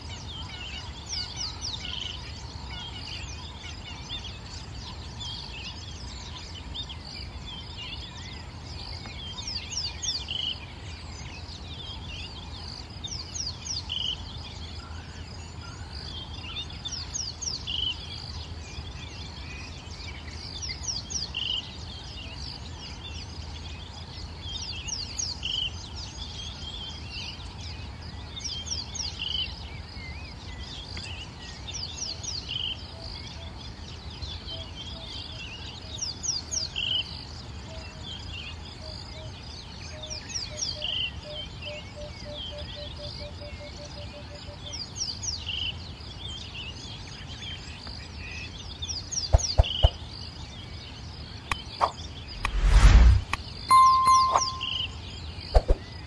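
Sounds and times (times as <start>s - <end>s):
birds chirping and calling: 46.4s - 56.0s.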